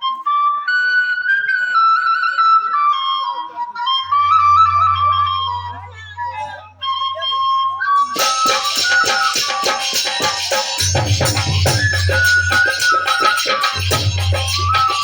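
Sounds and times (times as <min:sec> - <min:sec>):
held melody line: 0:04.0 - 0:15.0
fast hand percussion: 0:08.0 - 0:15.0.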